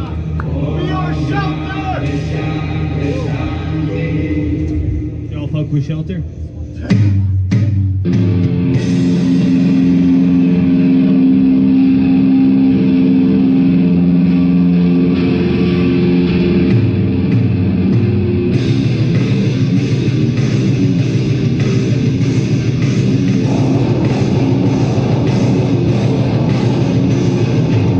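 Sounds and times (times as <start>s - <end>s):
distorted electric guitar and bass: 0.0s - 27.9s
drums fast beat: 6.8s - 10.1s, 16.7s - 27.9s.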